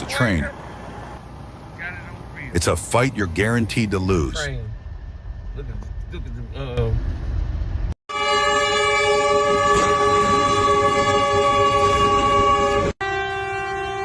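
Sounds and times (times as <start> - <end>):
low rumble: 4.0 - 8.0
train horn blast: 8.1 - 14.0.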